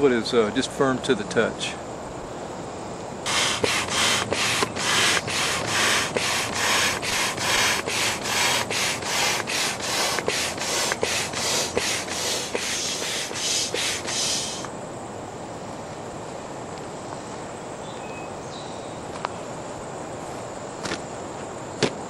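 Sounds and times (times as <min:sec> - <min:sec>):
manual air pump rushes: 0:03.3 - 0:14.7.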